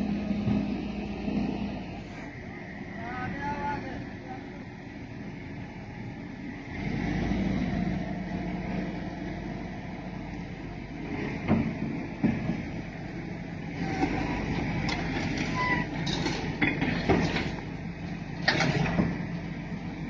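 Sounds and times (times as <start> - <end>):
low mechanical hum: 0.0 - 20.0
sharp knocks and clanks: 11.3 - 12.8, 14.0 - 17.7, 18.4 - 19.3
high-pitched squeaks: 15.4 - 16.2.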